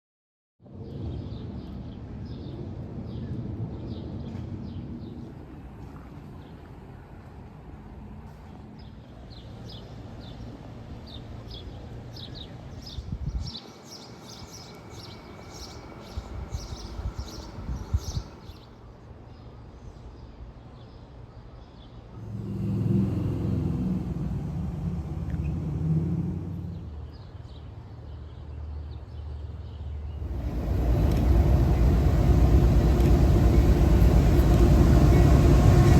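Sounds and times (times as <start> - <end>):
bird chirping: 12.8 - 18.7
deep engine rumble: 14.4 - 18.6, 22.1 - 27.1, 30.1 - 35.9
low rumble: 22.2 - 27.1, 30.1 - 35.9.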